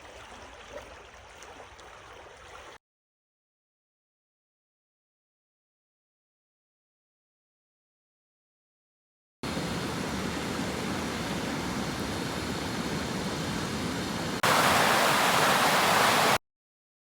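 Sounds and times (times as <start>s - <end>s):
river water rushing: 9.4s - 16.4s.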